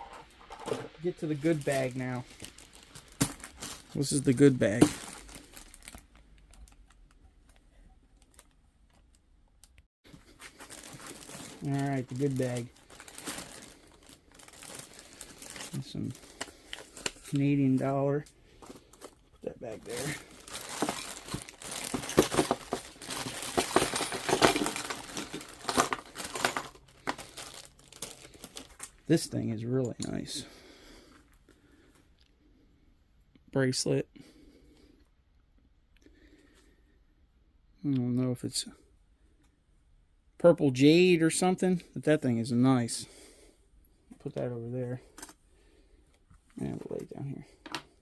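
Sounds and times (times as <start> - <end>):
bag crinkling: 0.4 - 7.2, 10.1 - 29.0
small metal pieces clinking: 20.5 - 28.6.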